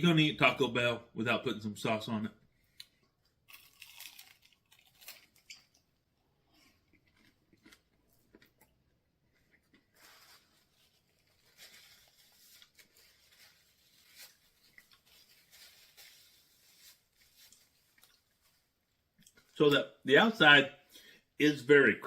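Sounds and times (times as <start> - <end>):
crunching of crispy food being eaten: 2.8 - 11.3, 13.6 - 18.5.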